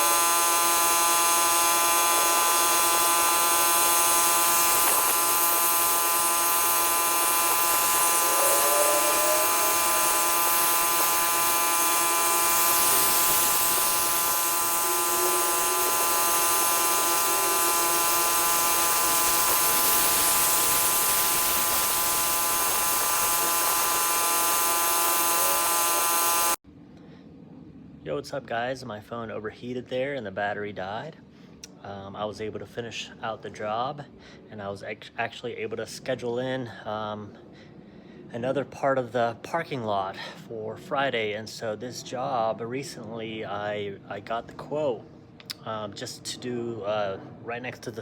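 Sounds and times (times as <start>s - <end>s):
pressure washer droning: 0.0s - 26.6s
spray hissing: 0.0s - 26.6s.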